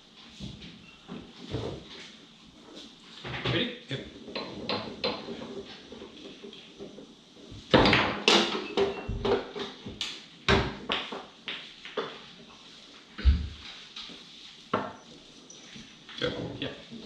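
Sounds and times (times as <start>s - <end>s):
foosball knocks and clacks: 4.2s - 12.3s.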